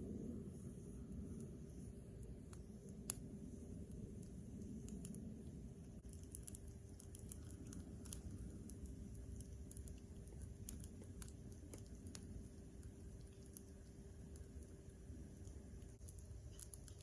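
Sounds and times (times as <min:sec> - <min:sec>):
campfire crackling: 0:00.0 - 0:17.0
faint steady hum: 0:00.0 - 0:17.0.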